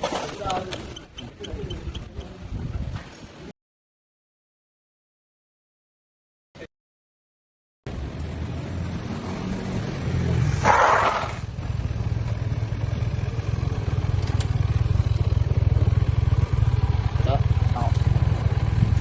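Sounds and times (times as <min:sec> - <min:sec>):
motorcycle engine idling: 0:11.6 - 0:19.0.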